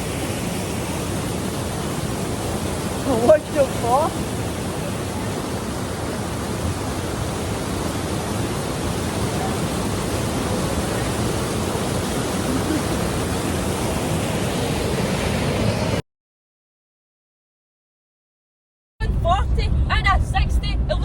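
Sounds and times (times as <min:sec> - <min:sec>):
waterfall rushing: 0:00.0 - 0:15.7.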